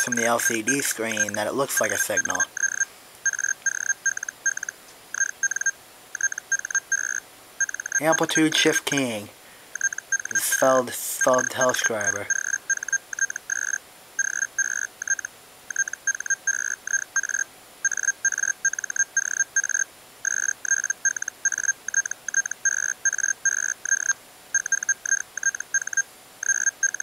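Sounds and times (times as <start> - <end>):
keyed audio tone bursts: 0.0 - 17.2.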